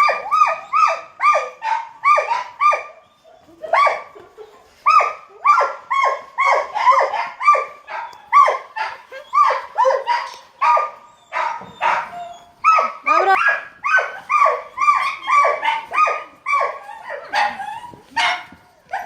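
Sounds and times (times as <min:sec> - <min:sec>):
dog barking in high yaps: 0:00.0 - 0:03.0, 0:03.6 - 0:04.2, 0:04.8 - 0:19.0.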